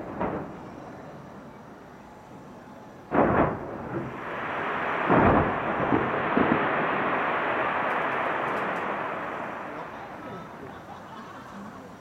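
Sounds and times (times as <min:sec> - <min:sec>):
fireworks booming: 0:00.0 - 0:01.6, 0:02.9 - 0:11.6
steady rushing noise: 0:03.1 - 0:10.8.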